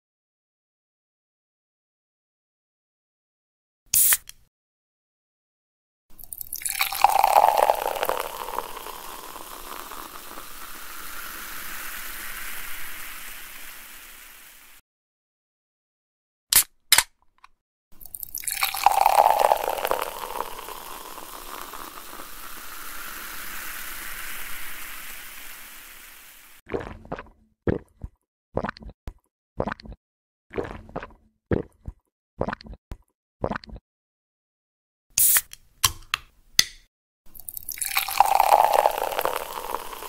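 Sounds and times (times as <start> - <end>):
beer pouring and fizzing: 6.2 - 14.8, 18.0 - 27.3, 37.3 - 40.0.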